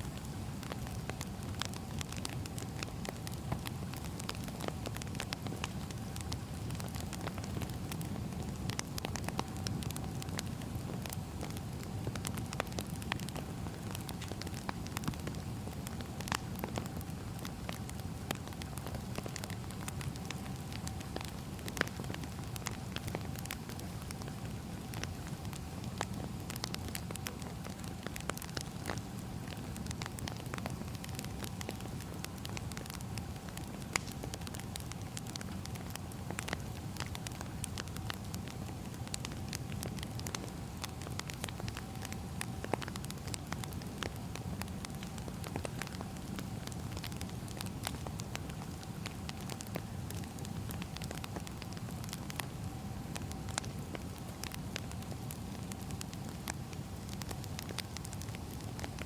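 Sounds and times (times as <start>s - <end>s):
fire low rumble: 0.0s - 59.0s
firewood crackling and popping: 0.0s - 59.0s.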